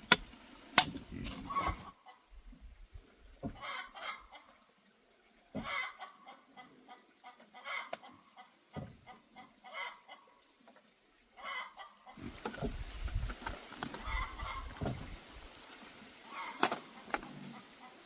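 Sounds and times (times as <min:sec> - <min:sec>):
chickens clucking: 0:01.1 - 0:02.5, 0:03.3 - 0:04.9, 0:05.5 - 0:10.6, 0:11.3 - 0:15.5, 0:16.2 - 0:18.0
rustling noise: 0:12.2 - 0:15.3.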